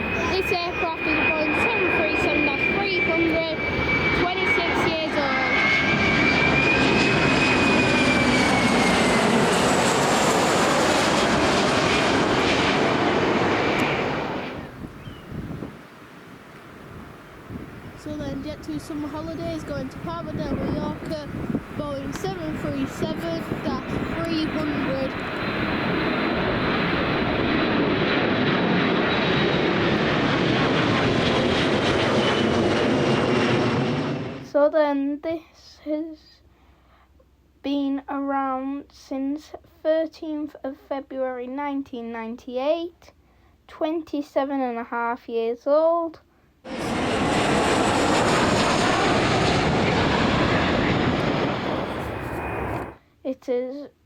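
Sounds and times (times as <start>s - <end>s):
jet airliner engines roaring: 0.0s - 34.6s, 46.7s - 53.0s.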